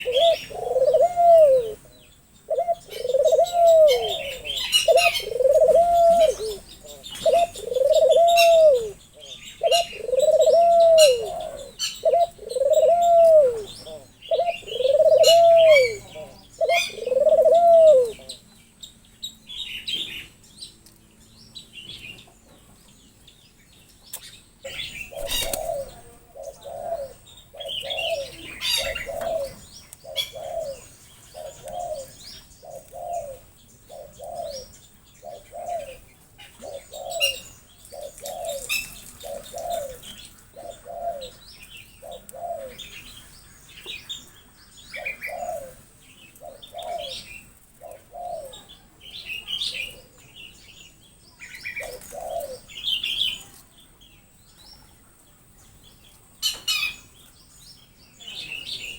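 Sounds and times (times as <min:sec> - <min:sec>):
bird hooting: 0:00.0 - 0:01.9, 0:02.5 - 0:18.4, 0:24.7 - 0:40.0, 0:40.6 - 0:41.4, 0:42.0 - 0:42.9, 0:45.0 - 0:45.8, 0:51.8 - 0:52.7
birds chirping: 0:00.0 - 0:58.9.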